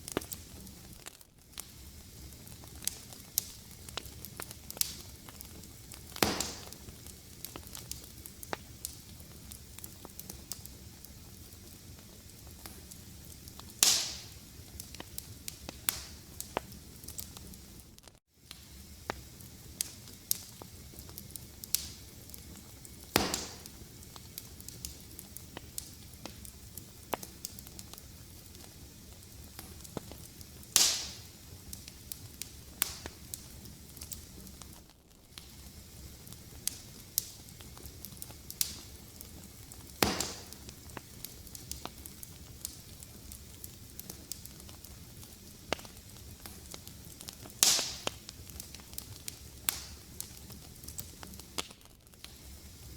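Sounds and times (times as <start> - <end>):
loud pops from fire: 0.0 - 52.9
wood fire crackling: 0.0 - 52.9.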